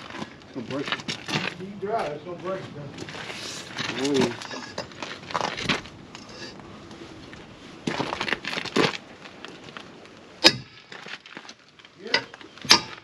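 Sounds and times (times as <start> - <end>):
sharp metallic clang: 10.4 - 10.9, 12.1 - 13.0.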